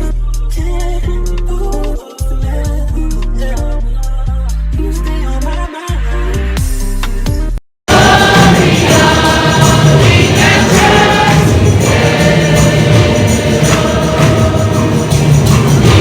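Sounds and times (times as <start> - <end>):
background music track: 0.0 - 16.0
gospel choir singing: 7.9 - 16.0.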